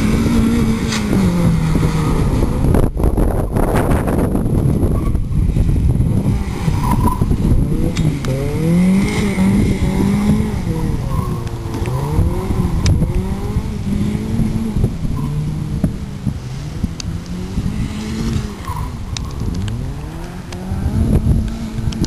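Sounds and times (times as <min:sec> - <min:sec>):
tyre and road noise: 0:00.0 - 0:22.0
car engine revving hard: 0:05.7 - 0:19.0.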